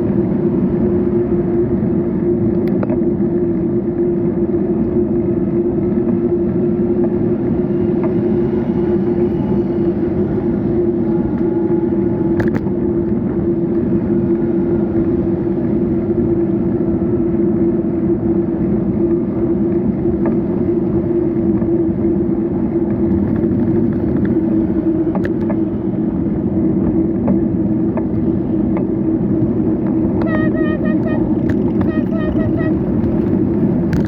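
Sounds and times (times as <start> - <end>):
constant road drone: 0.0 - 34.0
wind and tyre noise: 0.0 - 34.0.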